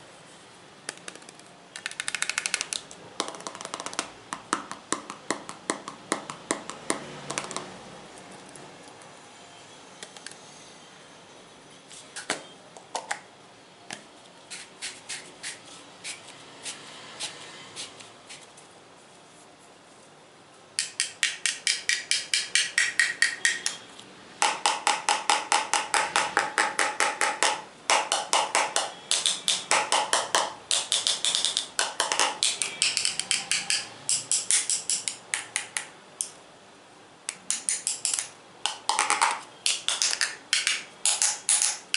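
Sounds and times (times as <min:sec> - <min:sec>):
tapping on hard objects: 0:00.9 - 0:07.7, 0:20.8 - 0:23.8, 0:24.4 - 0:35.9, 0:37.3 - 0:41.9.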